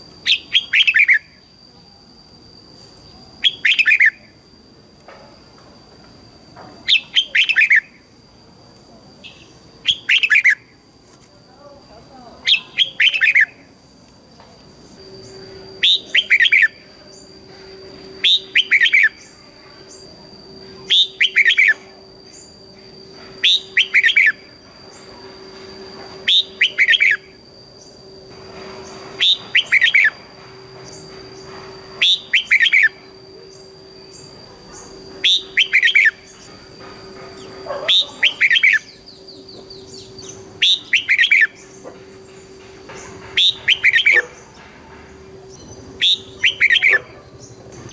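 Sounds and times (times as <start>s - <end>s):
bird singing falling notes: 37.3s - 44.8s, 45.4s - 47.9s.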